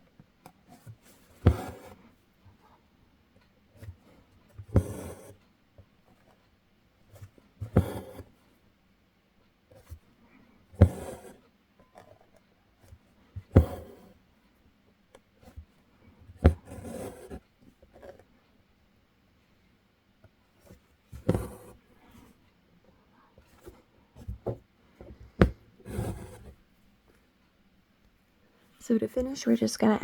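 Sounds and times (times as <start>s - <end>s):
thread rasping through fabric: 21.2s - 21.8s, 25.4s - 26.6s.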